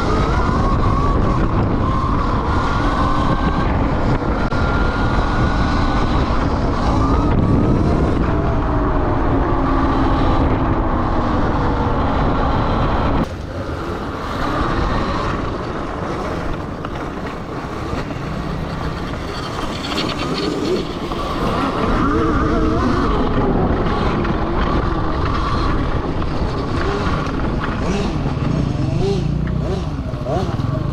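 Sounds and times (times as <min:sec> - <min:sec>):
heavy rumbling noise: 0:00.0 - 0:30.9.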